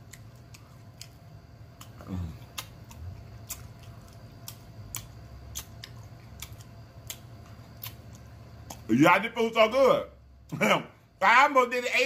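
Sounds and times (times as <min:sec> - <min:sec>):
wet chewing and mouth clicks: 0:00.0 - 0:08.9.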